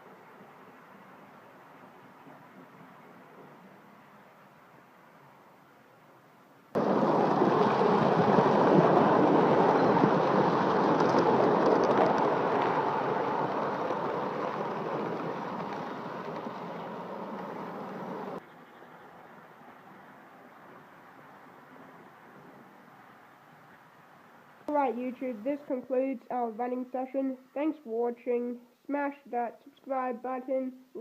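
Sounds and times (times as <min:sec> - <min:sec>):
model train rumbling on tracks: 0:06.8 - 0:23.7.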